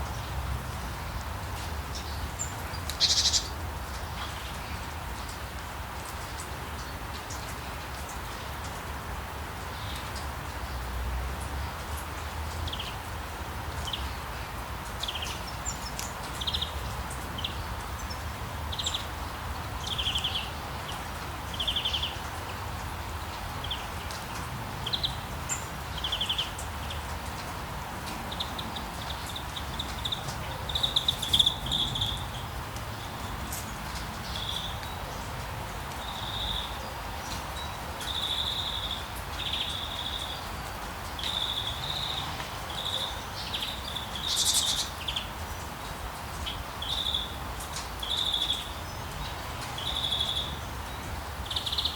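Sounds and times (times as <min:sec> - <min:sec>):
steady rain falling: 0:00.0 - 0:51.9
songbird trilled calls: 0:02.9 - 0:03.6, 0:42.8 - 0:45.3.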